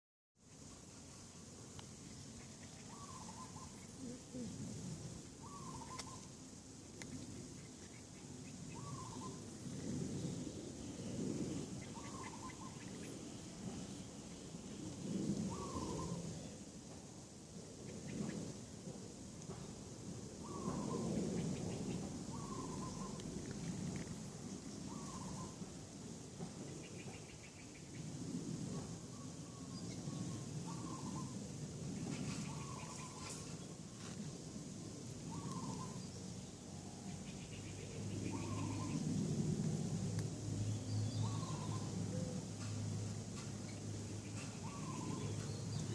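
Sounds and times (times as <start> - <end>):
low outdoor rumble: 0.5 - 45.9
bird calling: 2.3 - 4.6, 5.4 - 6.4, 7.1 - 9.5, 11.6 - 13.2, 15.4 - 16.4, 20.4 - 23.4, 24.8 - 25.6, 29.1 - 31.4, 32.0 - 33.6, 35.2 - 36.2, 37.1 - 39.1, 40.9 - 42.7, 43.6 - 45.9
bird call with falling pitch: 8.7 - 9.4, 44.4 - 45.9.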